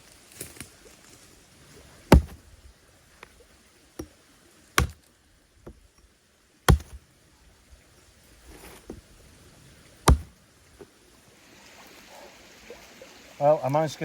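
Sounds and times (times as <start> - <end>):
firewood chopping knocks: 2.1 - 2.4, 4.8 - 5.0, 6.7 - 7.0, 10.0 - 10.4.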